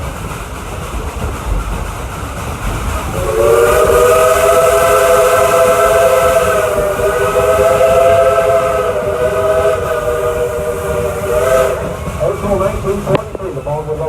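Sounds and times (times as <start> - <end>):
steam hissing: 0.0 - 14.0
steam locomotive chime whistle: 3.2 - 14.0.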